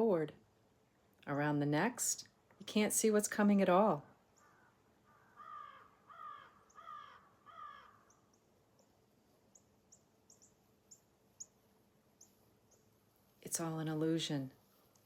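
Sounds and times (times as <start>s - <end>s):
bird calling: 4.4s - 8.4s
small bird chirping: 5.4s - 11.6s, 12.2s - 13.0s.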